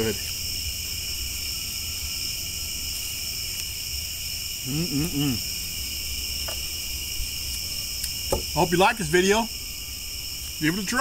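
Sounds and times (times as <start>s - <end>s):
crickets and insects chirring: 0.0s - 11.0s
man humming briefly: 4.7s - 5.4s.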